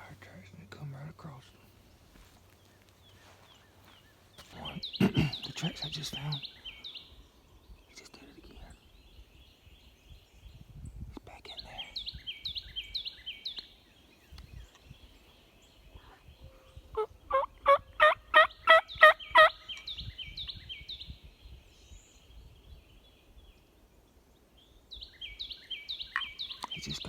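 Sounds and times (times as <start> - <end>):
songbird down-slurred notes: 0.0 - 10.6, 24.6 - 27.0
turkey gobbling: 17.0 - 19.6.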